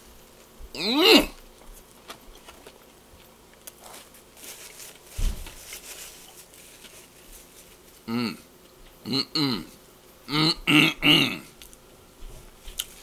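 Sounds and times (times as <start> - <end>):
man chewing: 0.8 - 4.2, 12.7 - 13.0.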